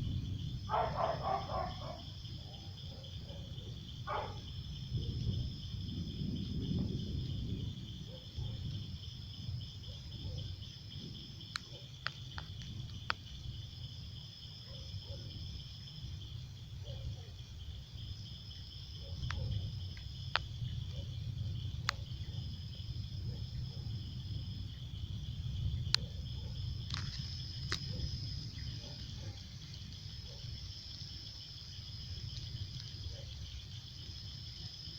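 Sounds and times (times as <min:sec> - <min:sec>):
low rumbling background: 0:00.0 - 0:02.5
insect higher pulsing trill: 0:00.0 - 0:34.9
insect steady high trill: 0:00.0 - 0:34.9.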